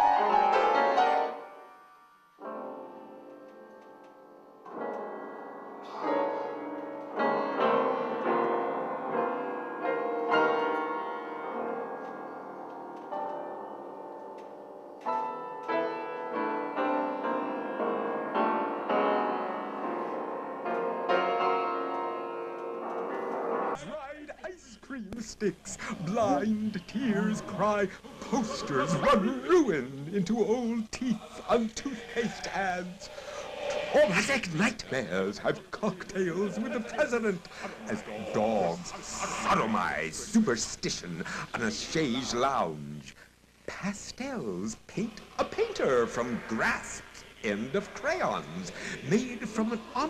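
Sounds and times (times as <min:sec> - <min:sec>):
solo piano playing: 0:00.0 - 0:23.8.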